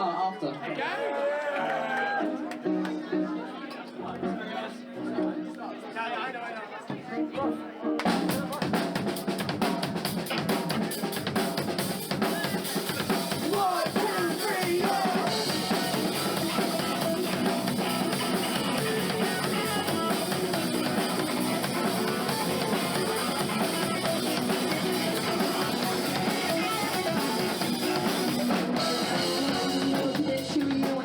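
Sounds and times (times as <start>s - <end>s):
live band music: 7.2s - 31.0s.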